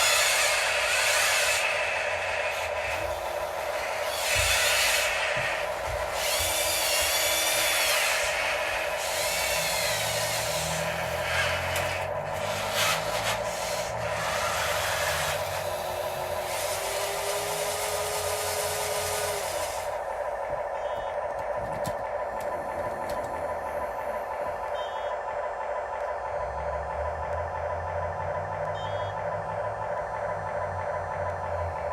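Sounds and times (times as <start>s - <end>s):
small electric motors whining: 0.0s - 21.0s.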